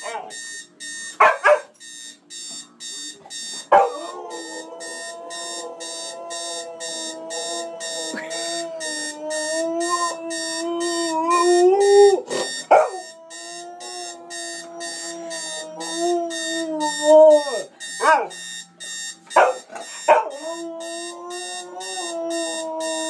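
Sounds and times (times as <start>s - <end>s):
alarm clock beeping: 0.0s - 23.0s
dog yelping: 1.2s - 1.7s, 3.7s - 18.4s, 19.4s - 22.6s
dog howling: 3.7s - 18.3s, 19.4s - 23.0s.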